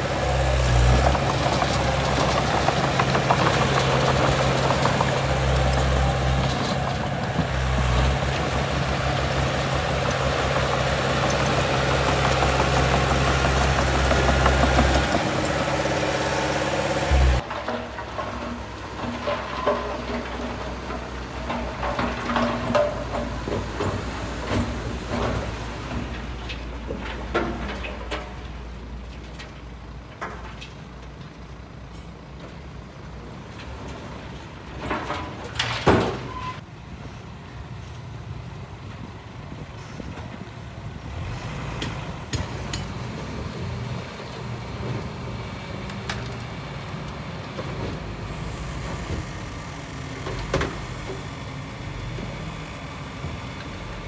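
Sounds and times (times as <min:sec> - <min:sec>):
diesel machinery rumbling: 0:00.0 - 0:54.0
metallic clanks and knocks: 0:00.4 - 0:28.6, 0:41.8 - 0:43.2.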